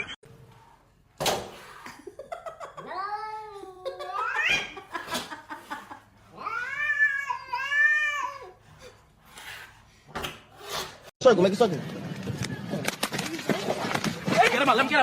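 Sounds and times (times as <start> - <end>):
cat yowling: 6.3 - 8.6.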